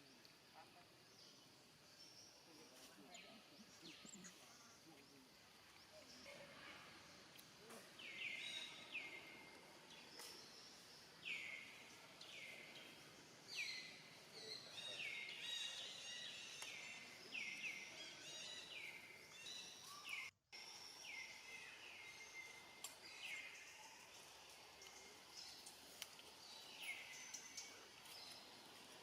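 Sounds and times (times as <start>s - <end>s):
outdoor background hiss: 0.0s - 29.0s
bird chirping: 0.7s - 29.0s.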